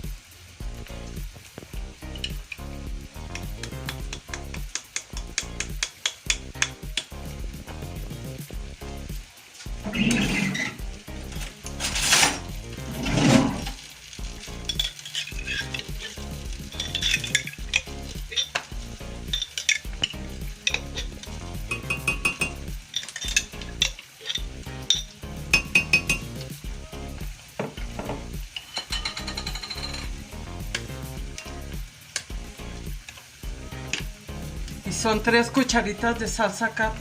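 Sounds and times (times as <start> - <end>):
background music: 0.0 - 37.0
food sizzling: 0.0 - 37.0
spoon clinking against a pot: 3.4 - 7.1, 14.7 - 18.7, 19.3 - 26.4, 28.5 - 30.2.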